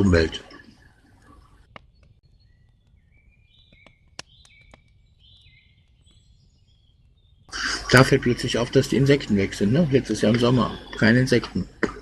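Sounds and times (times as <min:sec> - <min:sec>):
faint whistled birdsong: 0:00.5 - 0:11.6
sharp clicks or crackles: 0:03.6 - 0:05.0.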